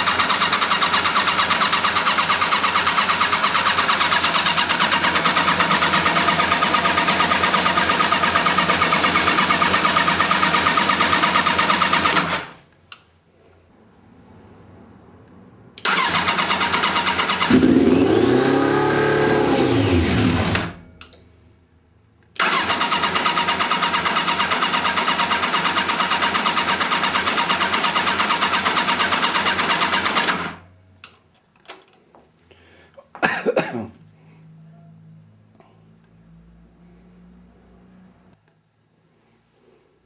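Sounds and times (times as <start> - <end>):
motorcycle engine cranking on starter: 0.0 - 12.6, 15.8 - 20.8, 22.4 - 30.6
clicks: 12.7 - 13.1, 21.0 - 21.3
engine briefly firing: 15.8 - 20.8, 22.4 - 27.0.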